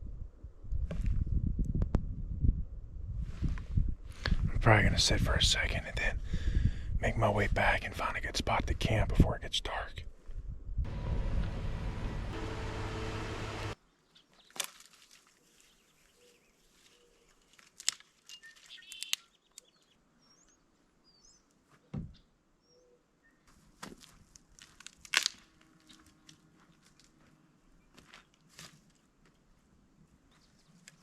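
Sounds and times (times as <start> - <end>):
loud rushing noise: 10.9 - 13.8
faint high bird chirps: 18.3 - 23.5.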